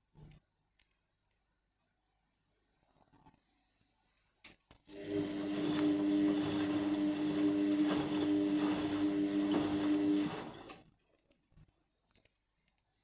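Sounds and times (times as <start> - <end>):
washing machine motor humming: 5.0 - 10.8.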